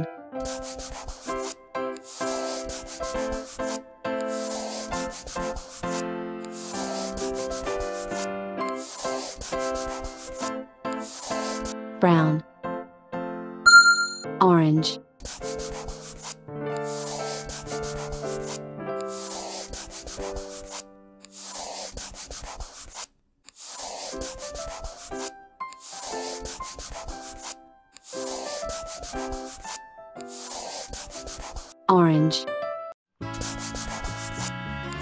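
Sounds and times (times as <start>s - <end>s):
marker scribbling on paper: 0.0s - 11.8s, 15.2s - 31.9s, 33.2s - 34.6s
gentle background tune: 0.0s - 21.9s, 24.2s - 35.0s.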